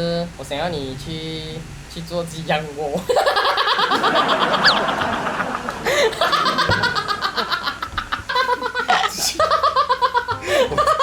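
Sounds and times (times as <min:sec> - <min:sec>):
people laughing hard: 0:03.0 - 0:11.0.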